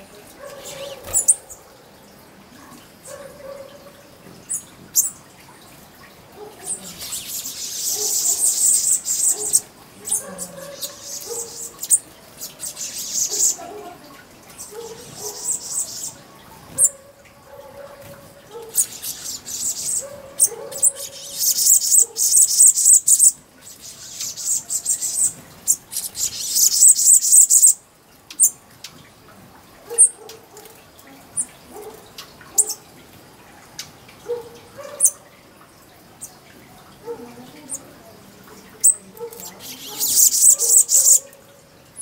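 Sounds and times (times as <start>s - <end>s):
small birds twittering: 0.0s - 1.8s, 4.4s - 5.8s, 6.4s - 17.0s, 18.0s - 28.6s, 38.6s - 42.0s.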